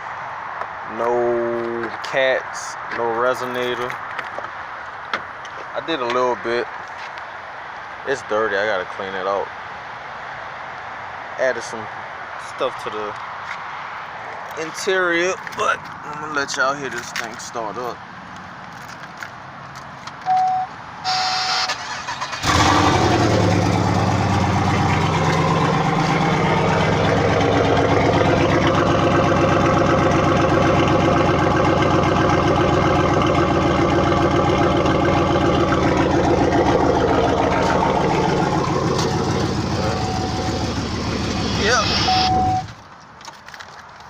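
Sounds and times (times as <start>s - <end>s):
short chime beeps: 20.3s - 20.7s, 41.9s - 42.7s
car engine cranking and starting: 21.5s - 42.8s
loud car engine idling: 22.4s - 42.7s.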